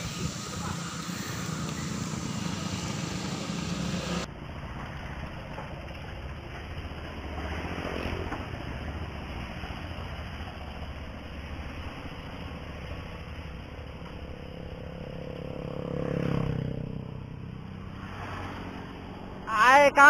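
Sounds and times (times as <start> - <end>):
wind noise on microphone: 0.0 - 1.0
motorcycle engine passing: 0.0 - 20.0.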